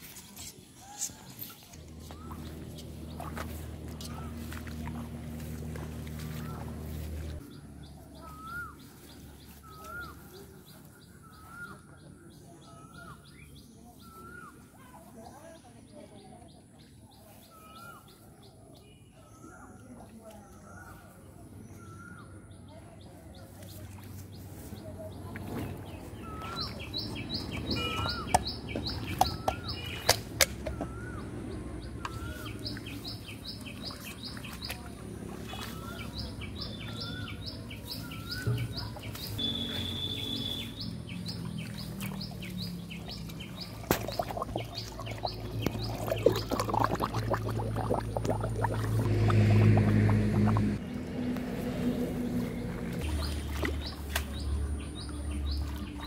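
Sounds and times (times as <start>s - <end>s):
hands splashing in pond water: 0.0s - 11.8s, 23.4s - 56.0s
birds chirping: 0.8s - 56.0s.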